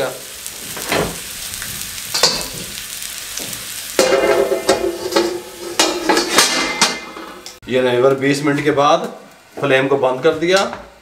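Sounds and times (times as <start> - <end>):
sweet potatoes sizzling in oil: 0.0 - 10.1
metal cover scraping on pan: 4.0 - 7.6.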